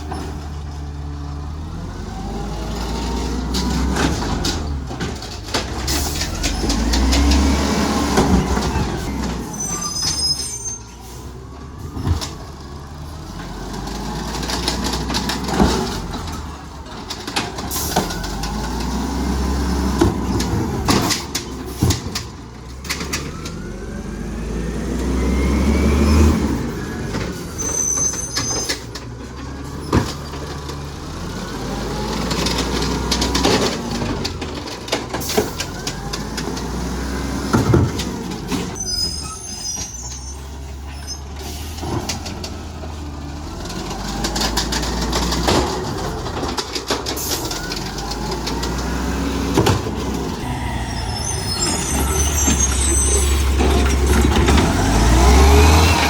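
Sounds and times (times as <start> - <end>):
diesel engine revving: 0.0 - 56.0
rising whine: 50.4 - 53.4.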